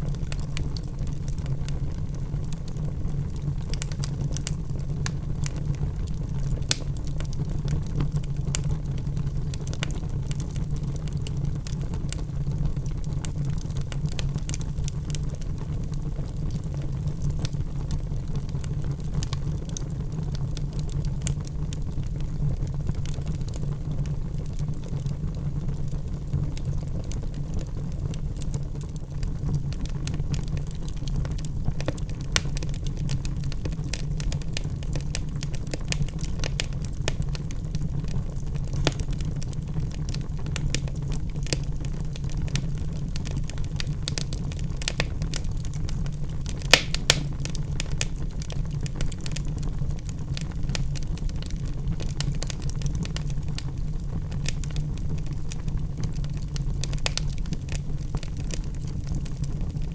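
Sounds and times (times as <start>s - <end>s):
fire crackling in fireplace: 0.0s - 59.9s
sharp pops of burning wood: 38.6s - 49.5s.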